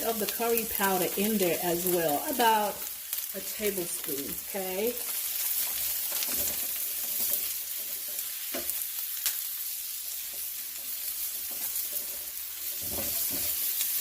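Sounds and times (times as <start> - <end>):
onions sizzling in hot oil: 0.0 - 14.0
spoon scraping a pan: 5.1 - 8.8, 10.1 - 14.0.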